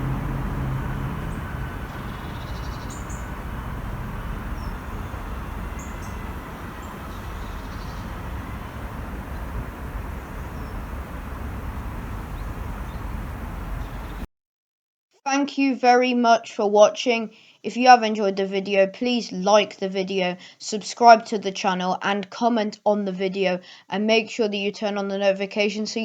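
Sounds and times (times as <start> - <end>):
small birds chirping: 0.0 - 14.2
low hum: 0.0 - 14.3
steady low rumble: 0.0 - 14.3.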